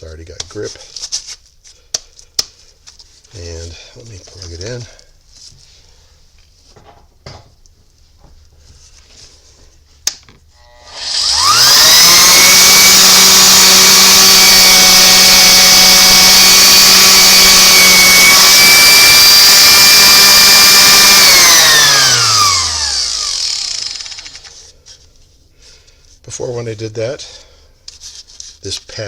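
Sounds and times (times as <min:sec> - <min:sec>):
orbital sander motor running: 0:10.6 - 0:24.5.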